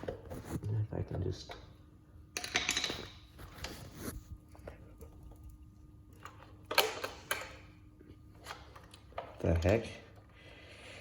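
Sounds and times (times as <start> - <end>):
hands clattering and rustling parts: 2.4 - 3.9.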